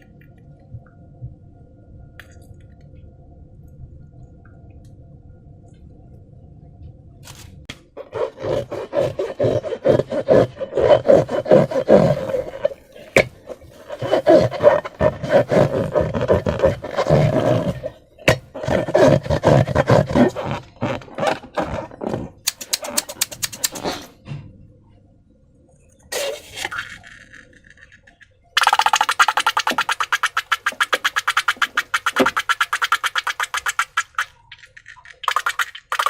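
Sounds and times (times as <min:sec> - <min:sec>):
slime crackling and squelching: 0:08.0 - 0:23.9
fast regular clicking: 0:22.4 - 0:23.9.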